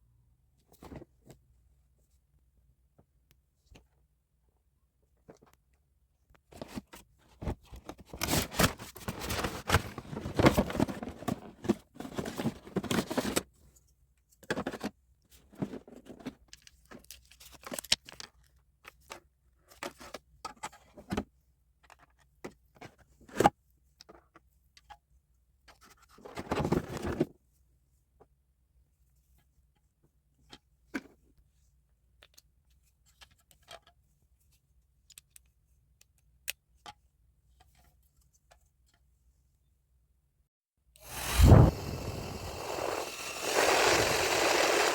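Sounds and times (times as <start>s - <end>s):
objects rustling and scraping: 6.5s - 13.5s.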